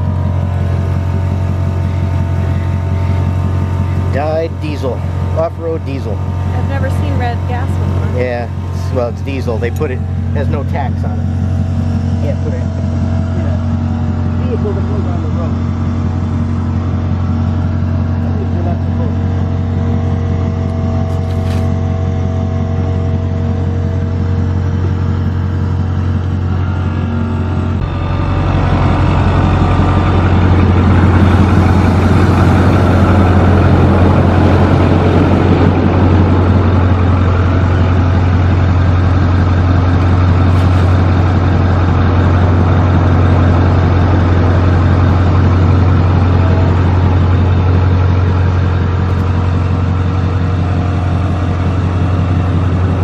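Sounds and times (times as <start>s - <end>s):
vehicle engine running: 0.0s - 53.0s.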